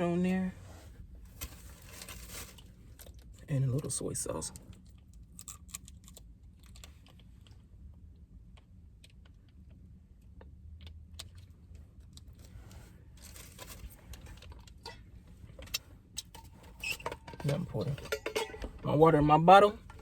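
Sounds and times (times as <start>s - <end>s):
soft rustle: 0.5s - 3.0s.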